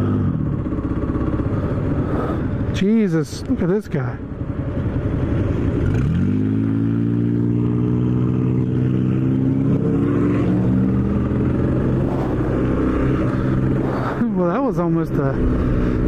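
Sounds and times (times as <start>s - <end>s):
motorcycle engine pulling away: 4.9s - 13.8s.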